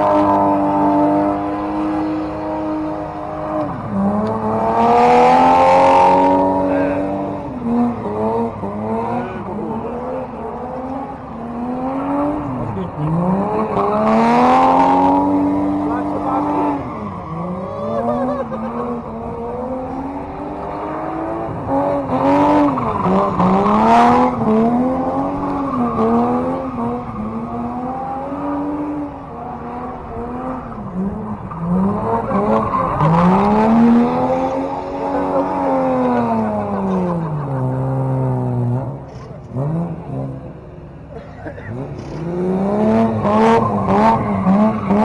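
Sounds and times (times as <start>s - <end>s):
car engine revving hard: 0.0s - 40.5s, 41.6s - 45.0s.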